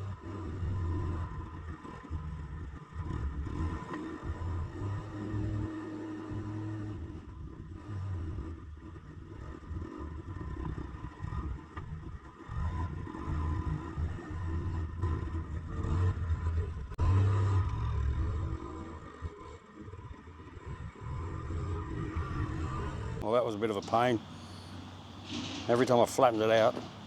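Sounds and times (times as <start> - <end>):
forklift engine rumbling under load: 12.5 - 27.0.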